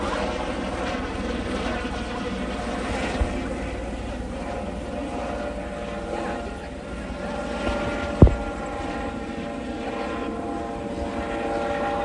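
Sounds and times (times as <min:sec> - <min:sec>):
helicopter rotor and turbine: 0:00.0 - 0:12.0
brief thump: 0:07.6 - 0:09.0.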